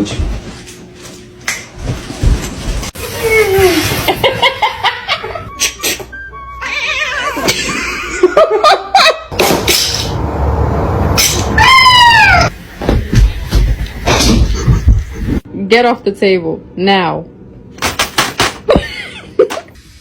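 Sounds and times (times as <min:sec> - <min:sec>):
person laughing: 0:03.2 - 0:06.1, 0:07.1 - 0:09.3, 0:14.1 - 0:15.4, 0:18.7 - 0:19.7.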